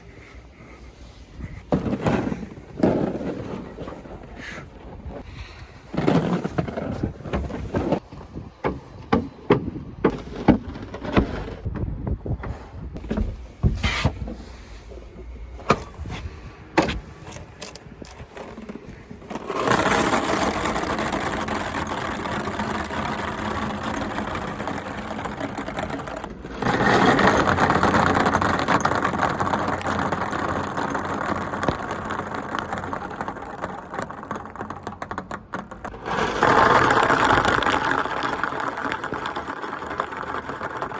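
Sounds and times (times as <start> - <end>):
balls bouncing down plastic slide: 17.6 - 40.9.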